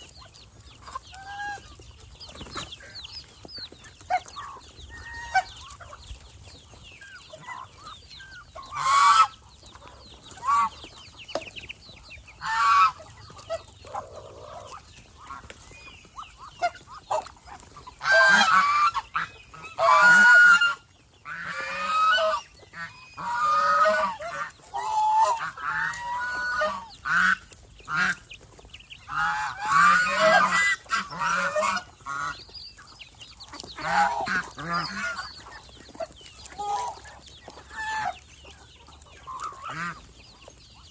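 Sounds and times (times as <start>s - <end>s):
geese honking: 7.0s - 11.5s, 12.3s - 28.3s, 29.0s - 32.5s, 33.4s - 40.9s.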